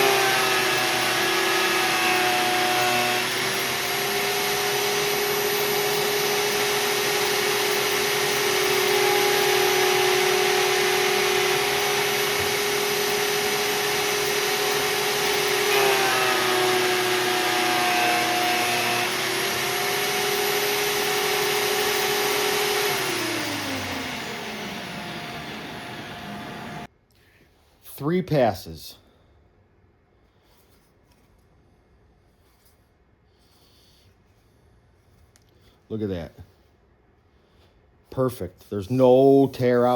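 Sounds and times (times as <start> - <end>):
benchtop planer motor whine: 0.0 - 26.9.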